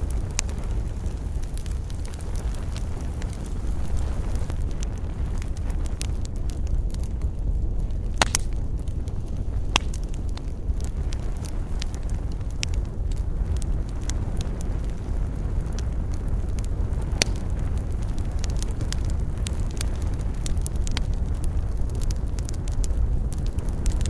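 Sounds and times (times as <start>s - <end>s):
burning wood crackling and snapping: 0.0s - 24.0s
low rumble of flames: 0.0s - 24.0s.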